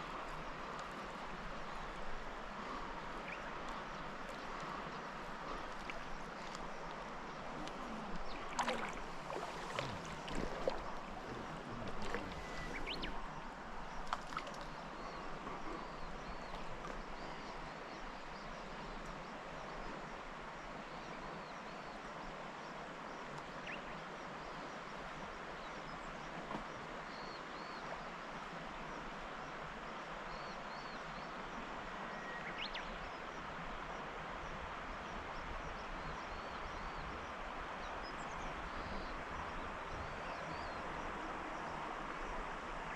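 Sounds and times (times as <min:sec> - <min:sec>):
river water rushing: 0:00.0 - 0:18.2.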